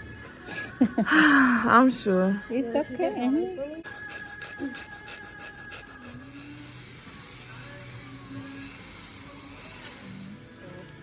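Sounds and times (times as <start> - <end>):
nail file rasping on fingernails: 3.8 - 7.7.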